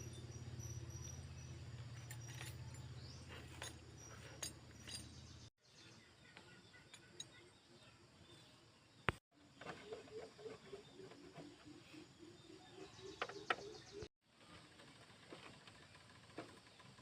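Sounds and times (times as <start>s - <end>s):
light metallic clinks: 0.0s - 5.5s.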